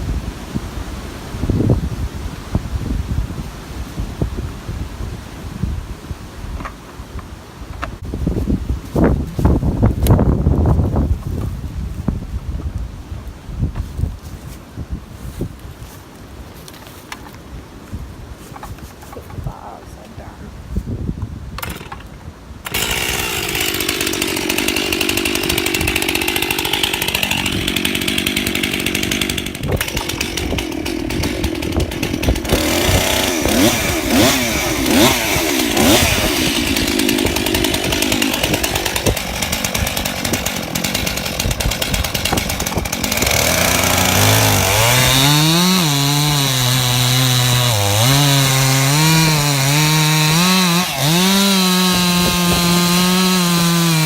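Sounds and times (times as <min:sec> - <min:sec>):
chainsaw cutting wood: 0:21.6 - 0:54.0.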